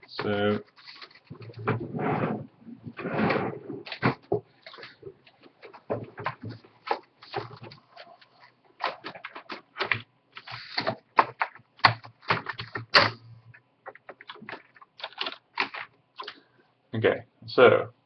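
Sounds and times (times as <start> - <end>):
mechanical keyboard typing: 13.9 - 16.4.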